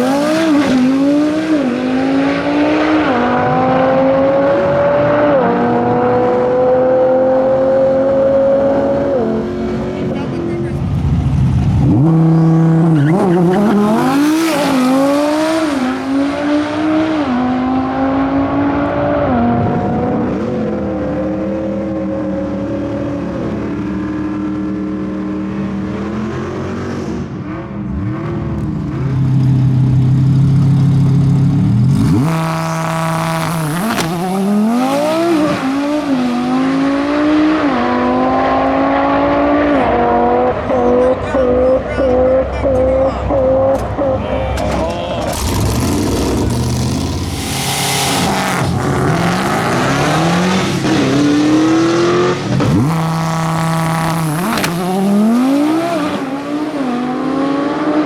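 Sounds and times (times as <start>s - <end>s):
sports car engine revving: 0.0s - 58.0s.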